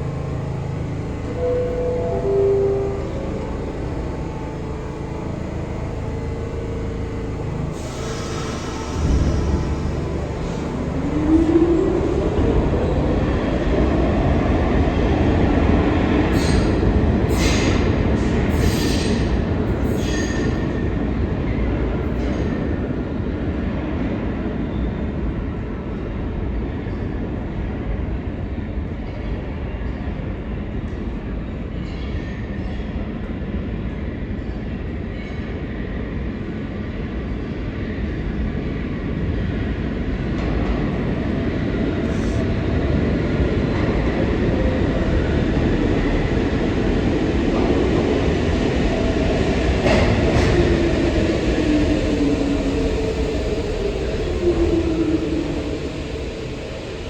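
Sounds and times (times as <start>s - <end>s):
subway train rumbling: 0.0s - 57.0s.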